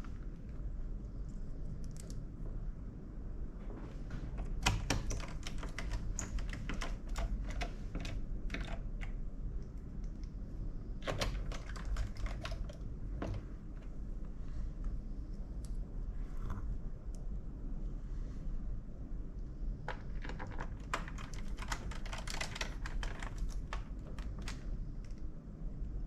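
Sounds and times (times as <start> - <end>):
laptop keyboard clicking: 4.4 - 9.2, 11.0 - 13.9, 19.9 - 25.2.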